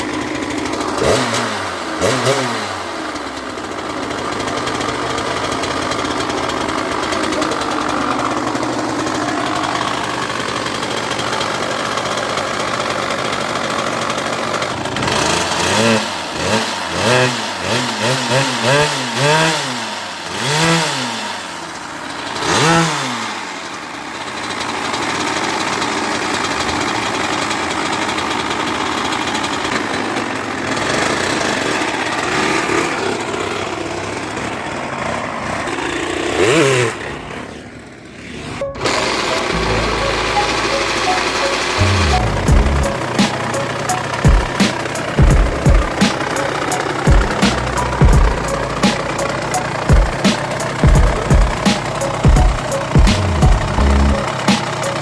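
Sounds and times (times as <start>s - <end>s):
dirt bike engine revving: 0.0s - 23.7s, 24.3s - 55.0s.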